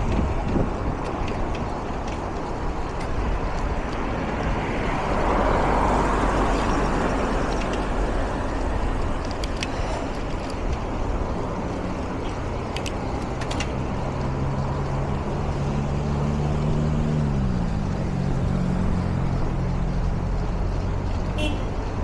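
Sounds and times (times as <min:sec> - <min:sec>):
wind buffeting microphone: 0:00.0 - 0:15.5
vehicle passing: 0:00.0 - 0:20.8
street traffic: 0:00.0 - 0:22.0.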